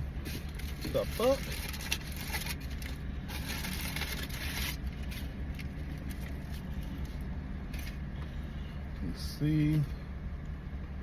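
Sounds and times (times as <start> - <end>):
steady low hum: 0.0 - 11.0
takeout packaging rustling: 0.3 - 7.2.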